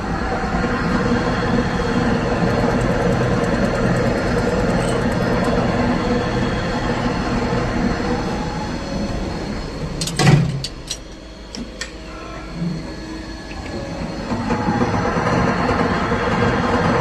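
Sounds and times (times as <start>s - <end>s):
machine humming: 0.0s - 17.0s
loud clatter: 2.3s - 6.0s.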